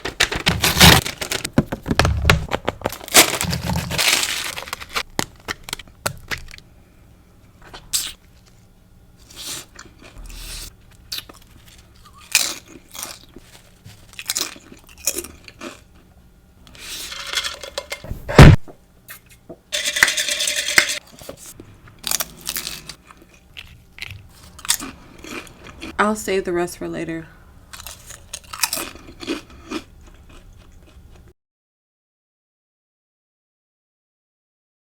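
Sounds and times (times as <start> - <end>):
crunchy bites and chewing: 2.8 - 6.7, 9.2 - 16.1, 21.1 - 26.0, 27.7 - 31.3
loud knock: 18.1 - 18.8.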